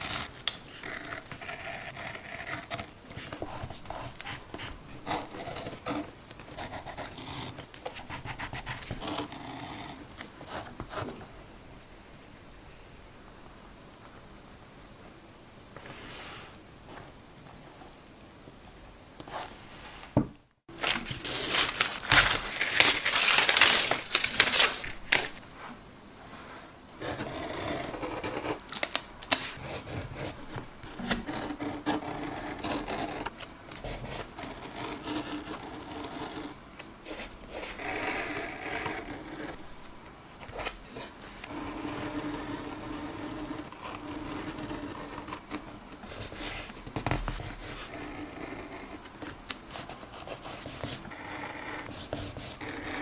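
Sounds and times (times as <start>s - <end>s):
tape and paper rustling: 20.7s - 25.4s, 28.6s - 29.6s.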